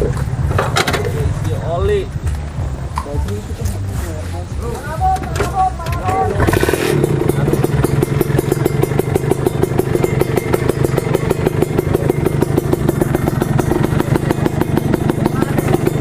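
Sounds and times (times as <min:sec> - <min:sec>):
motorcycle engine pulsing: 0:04.9 - 0:16.0.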